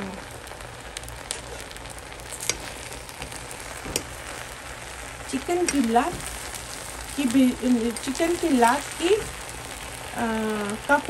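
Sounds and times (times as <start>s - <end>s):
rice sizzling in a pot: 0.0s - 11.0s.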